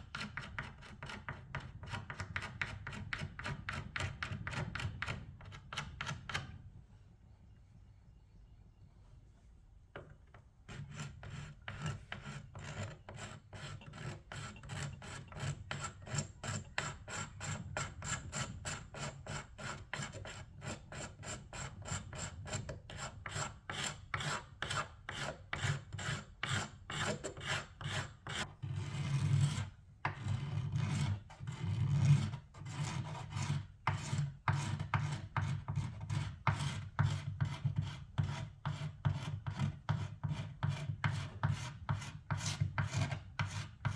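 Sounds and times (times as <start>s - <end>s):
hand tool scraping wood: 10.7s - 43.9s.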